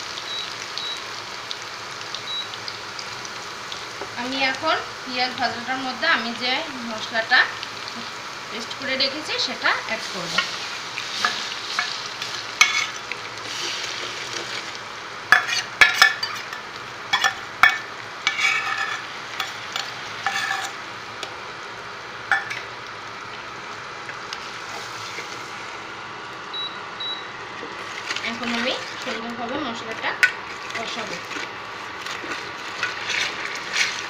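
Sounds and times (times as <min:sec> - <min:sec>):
paste sizzling in hot oil: 0:00.0 - 0:34.0
metal spoon scraping and clinking: 0:15.3 - 0:20.8, 0:32.2 - 0:34.0.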